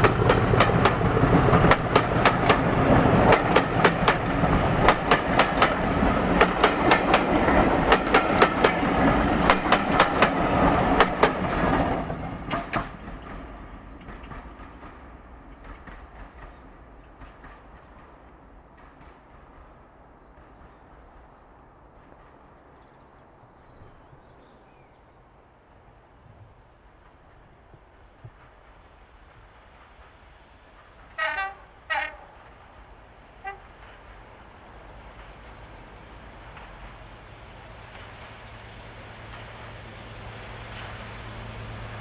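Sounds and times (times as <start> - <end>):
train wheels clattering over rail joints: 0.0 - 20.7
passenger train passing: 0.0 - 42.0.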